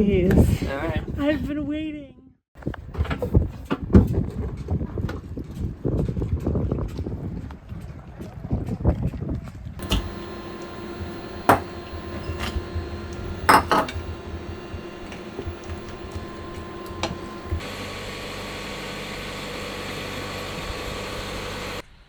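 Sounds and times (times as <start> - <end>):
glasses and utensils clinking: 9.8 - 12.7, 13.4 - 17.6.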